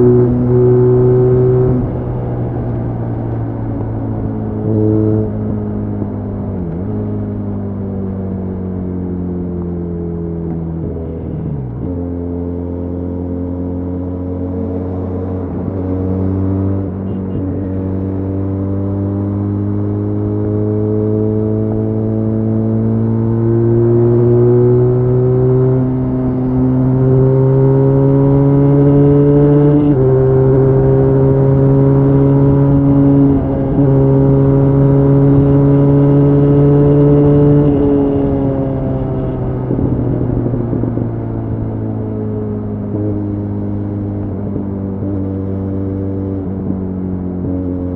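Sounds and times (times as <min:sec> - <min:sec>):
motorcycle engine at high speed: 0:00.0 - 0:47.9.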